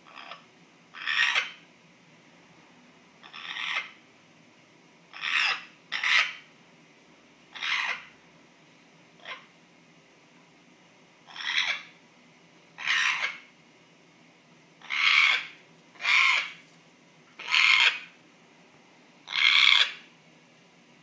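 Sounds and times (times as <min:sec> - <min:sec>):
parrot harsh noisy call: 0:00.0 - 0:01.6, 0:03.2 - 0:04.0, 0:05.1 - 0:06.5, 0:07.5 - 0:08.2, 0:09.2 - 0:09.5, 0:11.2 - 0:12.0, 0:12.8 - 0:13.5, 0:14.8 - 0:16.6, 0:17.4 - 0:18.2, 0:19.2 - 0:20.1.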